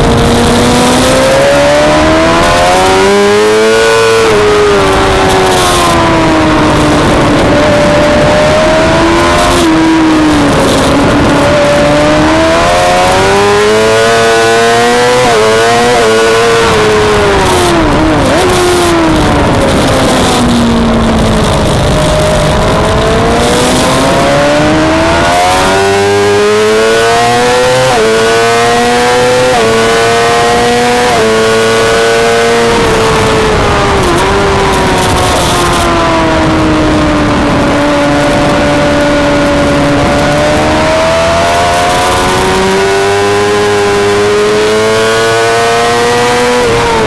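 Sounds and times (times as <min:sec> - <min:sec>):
racing motorcycle engine revving: 0:00.0 - 0:47.0
wind rushing: 0:00.0 - 0:47.0.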